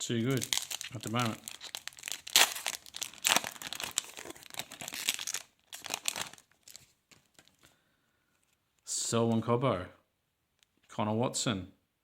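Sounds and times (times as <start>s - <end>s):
wrapper tearing and crinkling: 0.0s - 7.6s.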